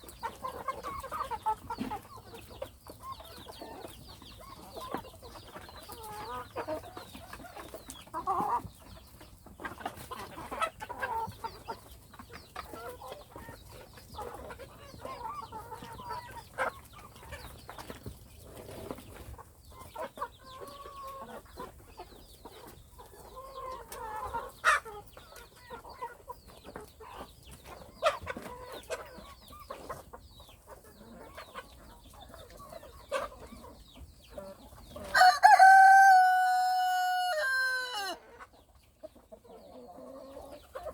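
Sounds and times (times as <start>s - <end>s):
chickens clucking: 0.0s - 40.9s
rooster crowing: 35.1s - 38.2s.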